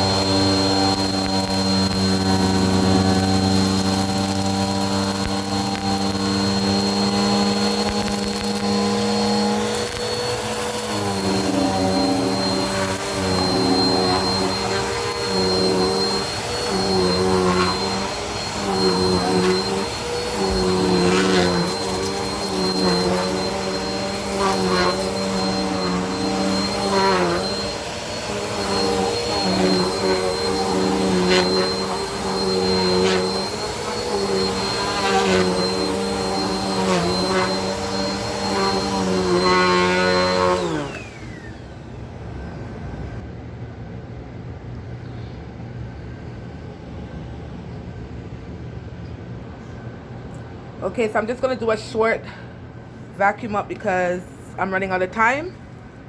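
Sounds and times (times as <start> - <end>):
vacuum motor winding down: 0.0 - 42.5
vacuum cleaner running: 0.0 - 43.3.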